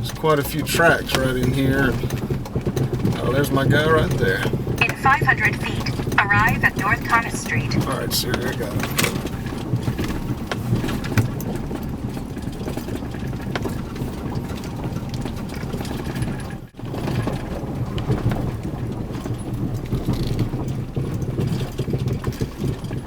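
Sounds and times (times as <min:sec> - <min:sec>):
small knocks and rattles: 0:00.0 - 0:03.4, 0:08.8 - 0:23.0
vehicle engine and road rumble: 0:00.0 - 0:23.0.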